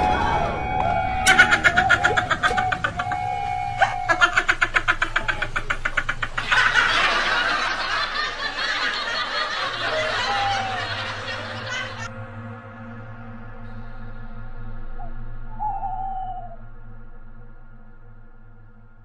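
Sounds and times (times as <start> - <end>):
high-pitched cackling laugh: 1.2 - 12.1.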